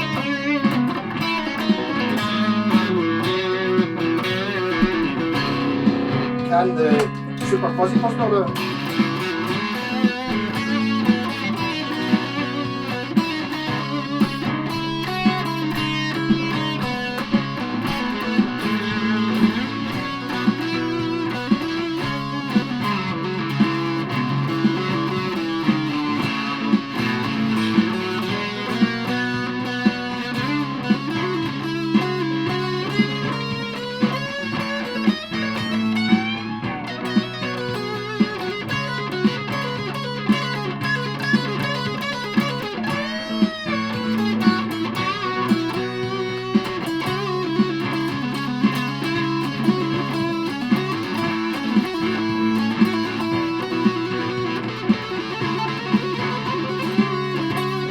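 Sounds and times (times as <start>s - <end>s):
backing track with beat and bass: 0.0s - 57.9s
fuzz electric guitar melody: 0.0s - 57.9s.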